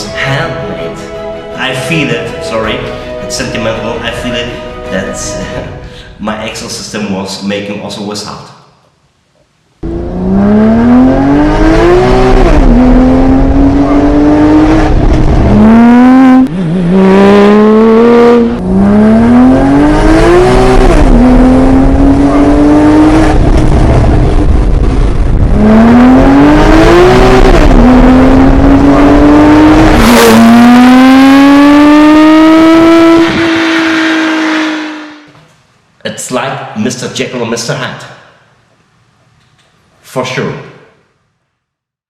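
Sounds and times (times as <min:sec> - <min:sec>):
sports car engine accelerating hard: 0:09.8 - 0:35.3.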